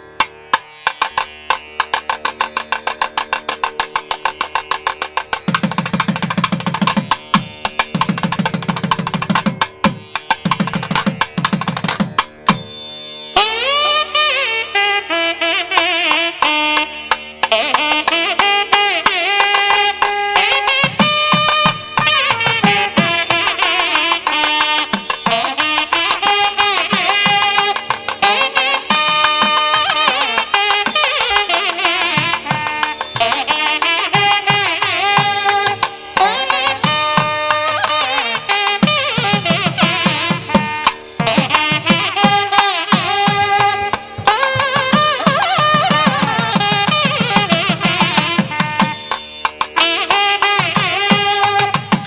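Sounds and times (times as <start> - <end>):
hand drum strokes: 0.2 - 12.7, 15.8 - 52.0
melody instrument with gliding notes: 18.6 - 52.0.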